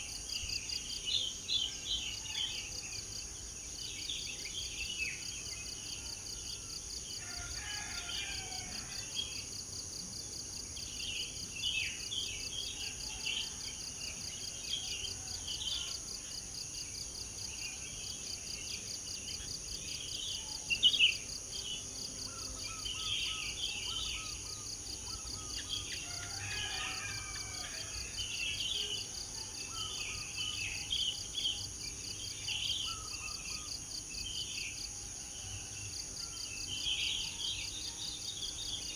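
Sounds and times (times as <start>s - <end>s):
insects droning: 0.0s - 38.9s
small birds chirping and singing: 17.5s - 38.9s.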